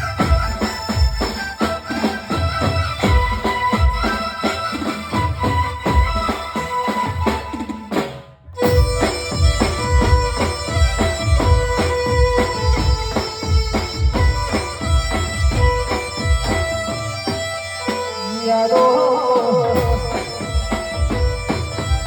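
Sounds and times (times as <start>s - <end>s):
reedy keyboard melody: 8.5s - 22.0s
fast drum beat: 19.6s - 22.0s.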